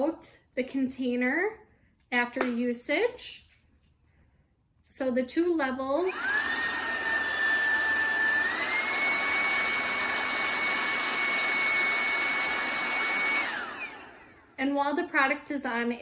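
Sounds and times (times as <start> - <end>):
handheld vacuum cleaner whining: 6.1 - 14.5.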